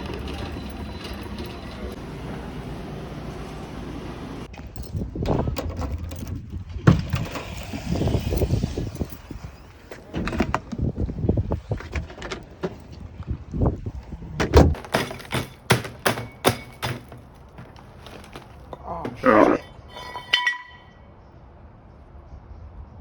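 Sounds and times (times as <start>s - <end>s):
dry ice knocking in plastic bucket: 14.8s - 18.5s.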